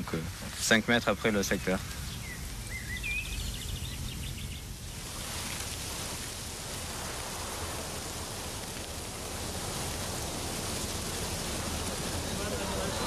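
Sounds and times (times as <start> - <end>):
steady even hiss: 0.0 - 13.0
small bird chirping trills: 0.9 - 4.8.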